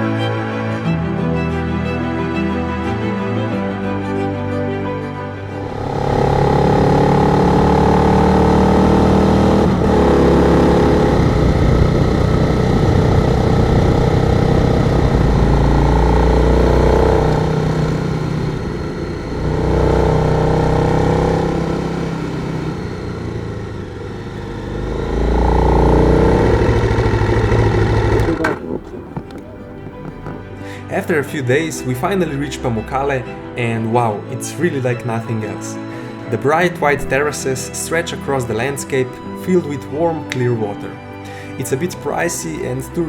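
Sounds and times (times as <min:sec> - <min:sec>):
motorcycle engine accelerating: 0:05.5 - 0:30.8.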